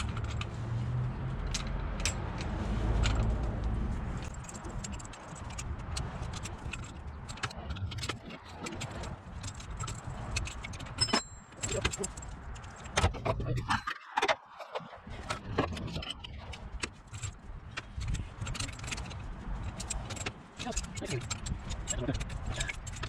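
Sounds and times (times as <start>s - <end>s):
metal tools clinking: 4.0s - 13.0s.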